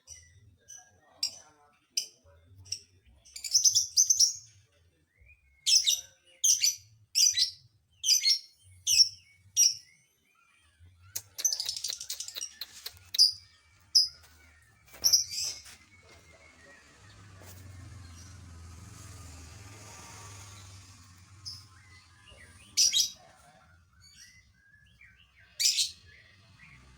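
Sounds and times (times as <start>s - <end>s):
lovebird chirping: 5.6s - 16.2s.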